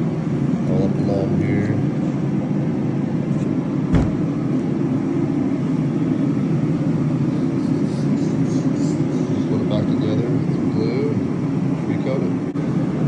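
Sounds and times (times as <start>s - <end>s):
low background rumble: 2.4s - 7.0s.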